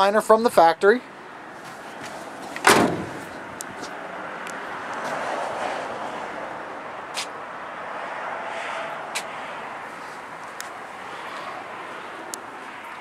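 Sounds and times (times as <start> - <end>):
outdoor background noise: 0.0 - 13.0
pickup door slamming: 2.5 - 3.5.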